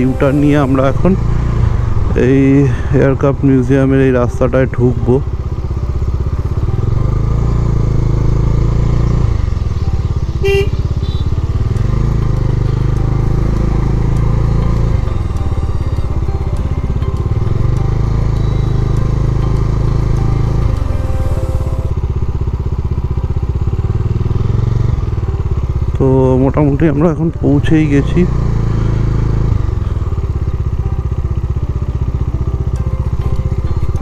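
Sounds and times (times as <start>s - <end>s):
brief high-pitched tone: 0.0s - 1.4s, 17.9s - 22.0s
motorcycle engine running: 0.0s - 34.0s.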